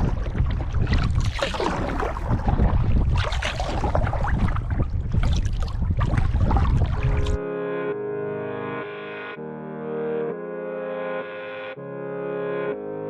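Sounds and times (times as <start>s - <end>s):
water splashing around kayak: 0.0s - 7.4s
wind buffeting microphone: 0.0s - 7.4s.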